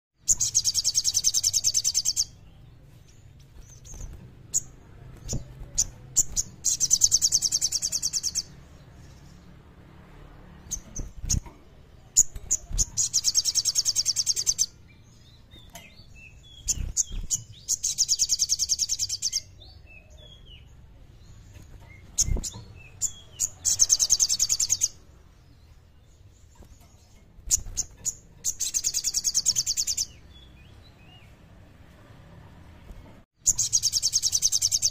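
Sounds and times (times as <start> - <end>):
bird singing trilled phrases: 0.2 - 9.5, 10.6 - 31.4, 33.4 - 34.9
bird chirps and clicks: 3.4 - 9.3, 10.6 - 14.8, 15.5 - 19.6, 21.5 - 25.0, 26.3 - 30.2.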